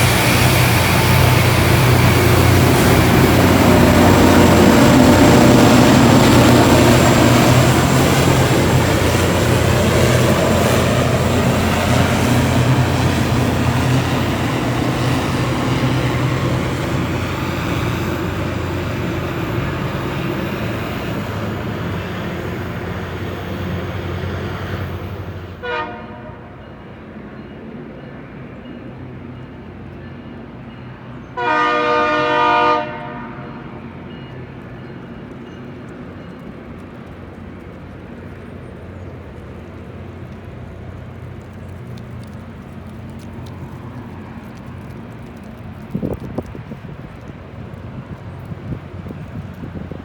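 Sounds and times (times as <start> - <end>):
wind buffeting microphone: 0.0 - 25.5, 35.9 - 50.0
train rumbling: 0.0 - 50.0
train horn blasts: 25.6 - 26.7, 31.4 - 34.0.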